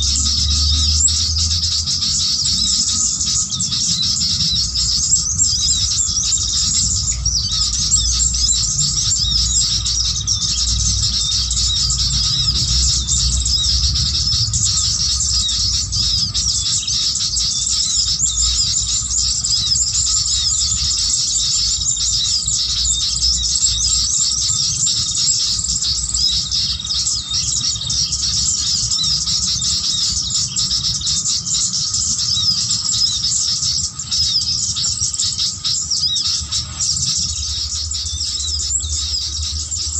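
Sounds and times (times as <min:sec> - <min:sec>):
low rumble: 0:00.0 - 0:24.5
birds chattering and twittering: 0:00.0 - 0:39.9.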